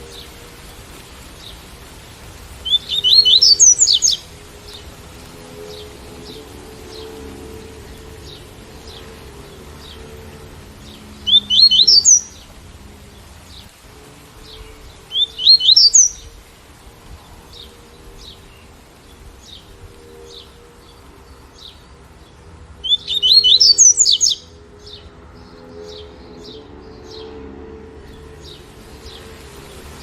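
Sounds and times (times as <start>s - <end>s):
rain: 0.0s - 30.0s
bird singing rising notes: 2.6s - 4.8s, 10.8s - 12.5s, 14.4s - 16.3s, 21.6s - 30.0s.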